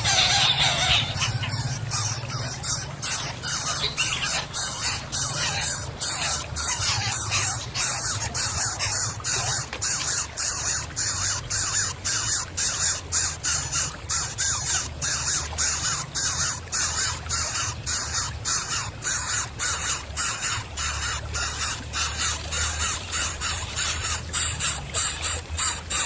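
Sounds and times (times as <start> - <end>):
chicks calling harshly: 0.0 - 9.5.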